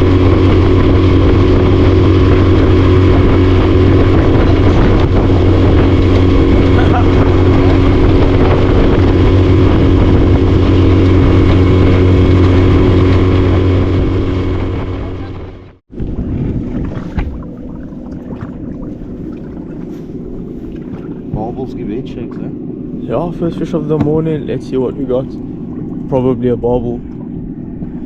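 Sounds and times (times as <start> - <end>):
wind rushing: 0.0 - 21.6
outboard motor running: 0.0 - 28.0.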